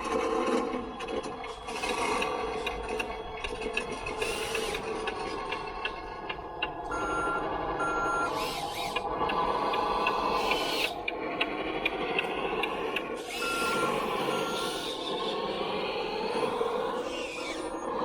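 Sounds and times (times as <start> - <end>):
reversing beeps: 6.8 - 9.0, 13.4 - 15.0.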